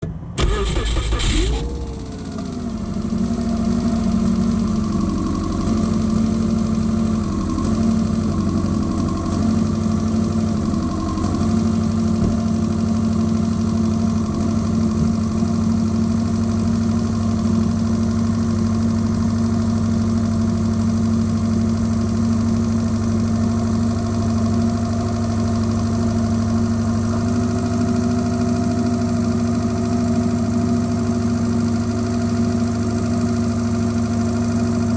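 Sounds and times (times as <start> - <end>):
car engine idling: 0.4 - 15.8.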